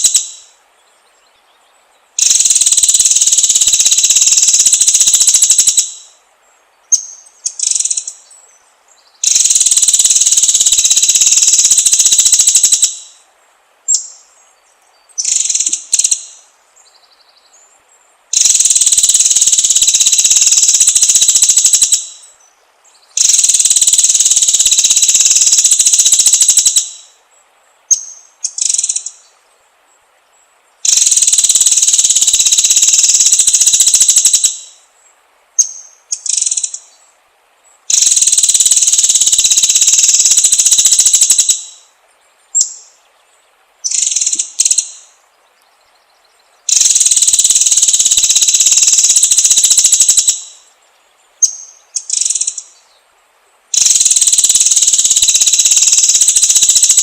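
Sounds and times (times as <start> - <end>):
bird buzzing high-pitched trills: 0.0 - 0.6, 2.2 - 6.2, 6.9 - 8.4, 9.2 - 13.2, 15.2 - 16.4, 18.3 - 22.4, 23.1 - 27.2, 30.8 - 34.8, 37.9 - 41.9, 43.8 - 45.2, 46.7 - 50.7, 51.4 - 52.8, 53.7 - 57.0.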